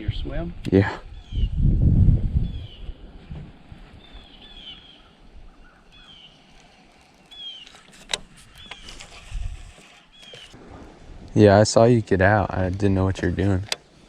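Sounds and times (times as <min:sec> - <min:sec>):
bird chirping: 0:04.0 - 0:09.4, 0:10.0 - 0:10.6.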